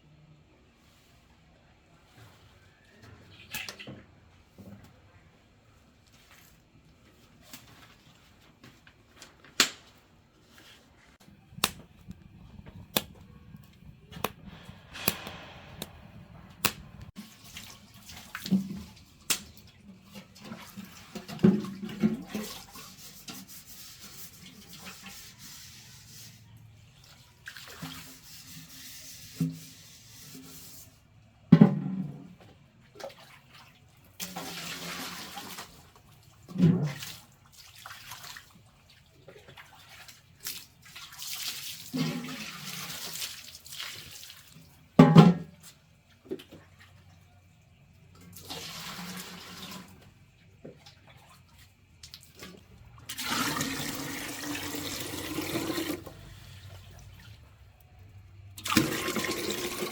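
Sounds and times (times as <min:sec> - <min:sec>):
sharp knocks and clatter: 0:13.8 - 0:17.1.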